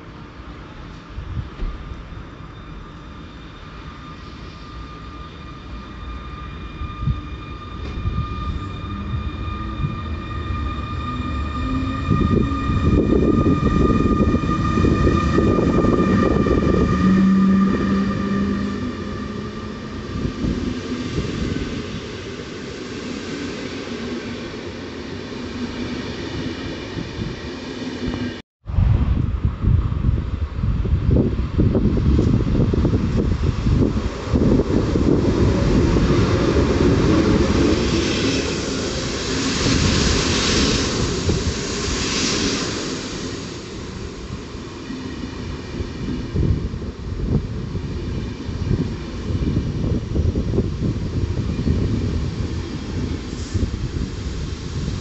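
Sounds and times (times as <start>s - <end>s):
train rumble: 0.0s - 55.0s.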